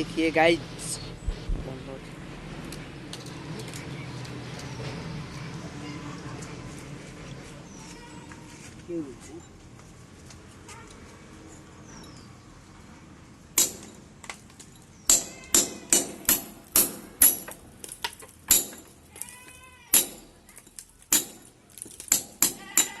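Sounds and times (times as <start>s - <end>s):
sharp metallic knocks: 13.6s - 14.4s, 15.1s - 19.3s, 19.9s - 23.0s.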